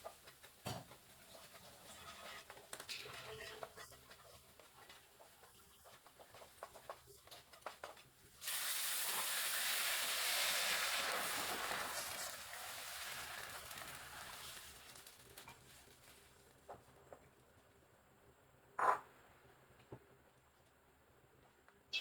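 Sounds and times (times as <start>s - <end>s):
food sizzling in a hot pan: 8.4s - 15.7s.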